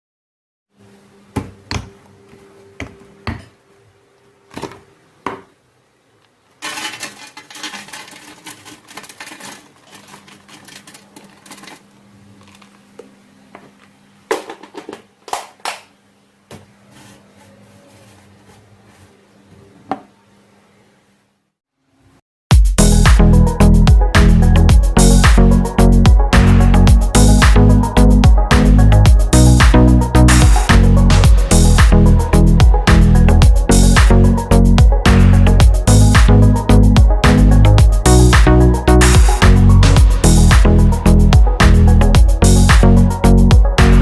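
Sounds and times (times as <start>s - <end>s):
rattling or scraping: 6.6s - 11.9s
utensils and bowls clicking: 6.6s - 12.7s
steady low hum: 22.8s - 44.0s.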